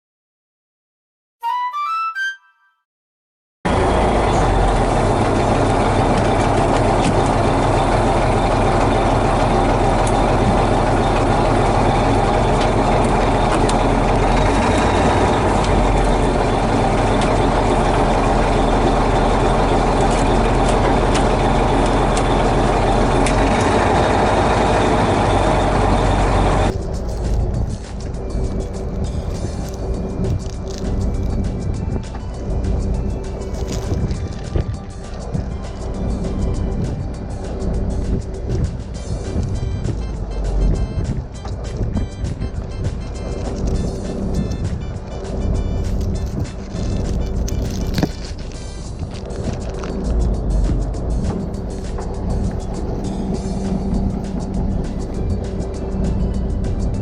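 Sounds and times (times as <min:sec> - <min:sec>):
boat engine running: 0:03.7 - 0:57.0
loud rushing noise: 0:13.9 - 0:57.0.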